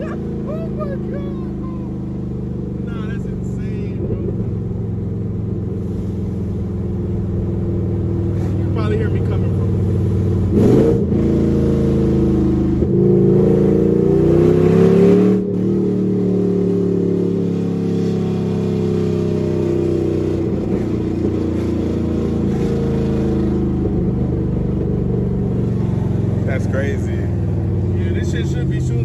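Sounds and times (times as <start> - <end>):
car engine revving loudly: 8.4 - 24.6.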